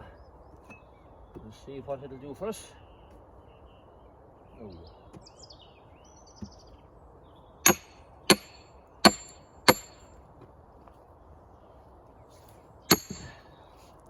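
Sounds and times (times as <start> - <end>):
sledgehammer clanging on steel wedge: 7.7 - 10.1, 12.9 - 13.5.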